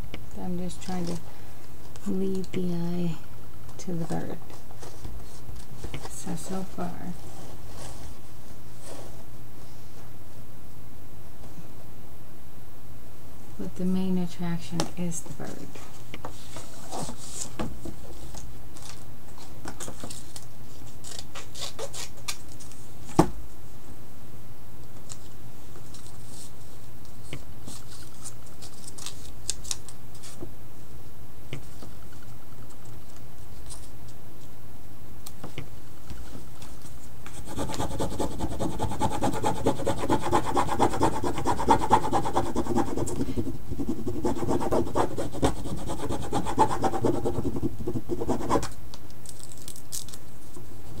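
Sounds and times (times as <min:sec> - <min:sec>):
pen scratching on surface: 0:37.4 - 0:48.7.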